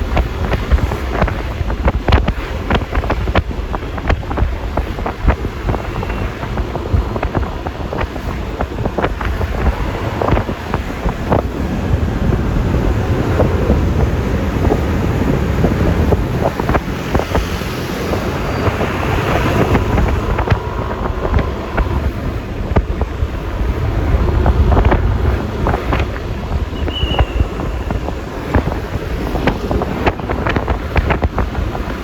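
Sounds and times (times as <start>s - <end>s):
scooter road noise: 0.0s - 32.0s
wind buffeting microphone: 0.0s - 32.0s
sharp ticks and knocks: 15.6s - 23.3s.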